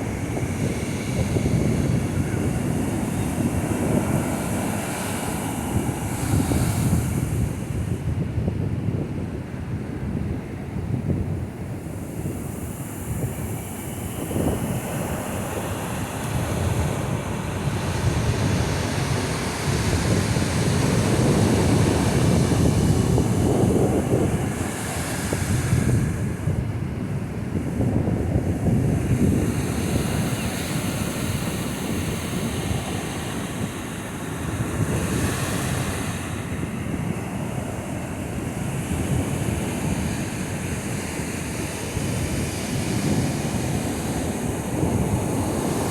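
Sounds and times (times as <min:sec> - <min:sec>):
ocean surf breaking: 0:00.0 - 0:08.0, 0:11.8 - 0:45.9
wind rumbling on microphone: 0:00.0 - 0:45.9.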